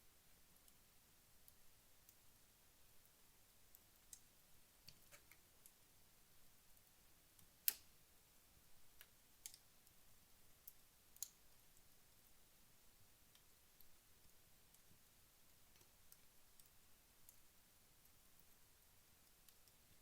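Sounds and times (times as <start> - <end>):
low fire hiss: 0.0 - 20.0
wood fire crackling and popping: 3.0 - 5.9, 6.6 - 8.0, 8.7 - 20.0.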